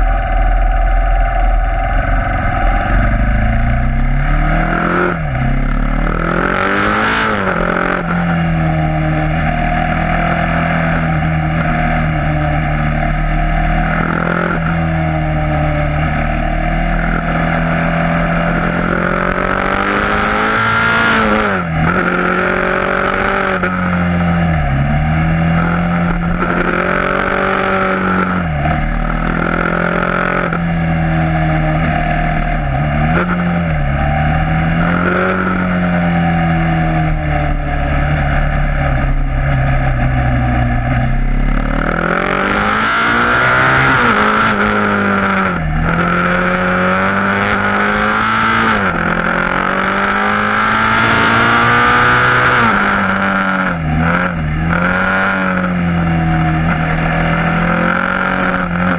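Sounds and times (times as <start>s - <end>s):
wind rushing: 0.0s - 6.8s
motorcycle engine revving: 0.0s - 58.9s.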